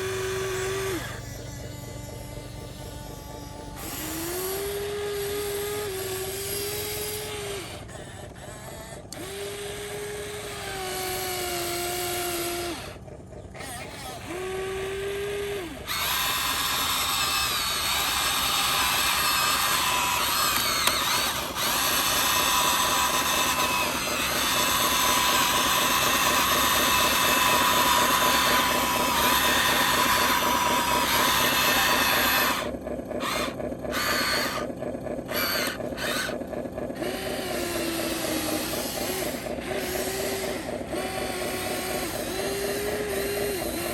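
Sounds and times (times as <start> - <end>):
electric motors whirring: 0.0 - 43.9.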